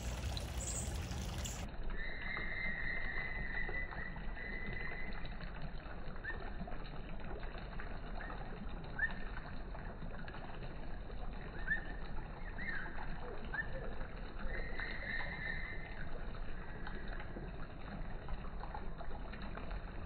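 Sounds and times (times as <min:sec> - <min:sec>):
bird chirps: 0:00.6 - 0:05.0.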